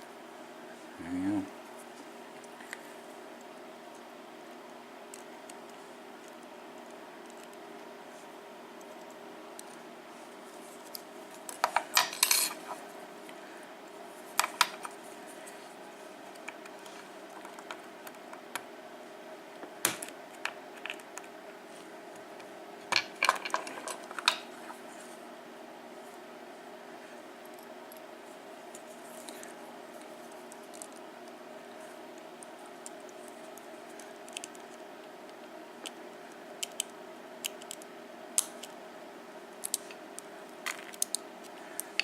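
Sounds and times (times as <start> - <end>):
lock pins clinking on hard surface: 11.6 - 12.6.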